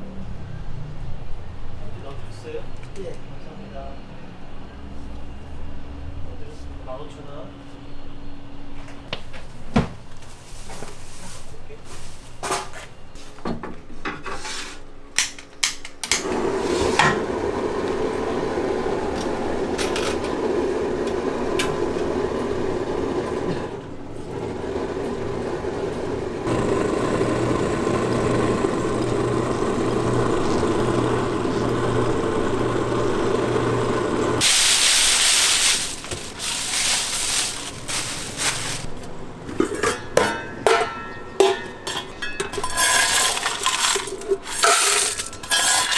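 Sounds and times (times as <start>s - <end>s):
gas burner hiss: 26.4s - 38.9s
loud rush of hiss: 34.4s - 38.9s.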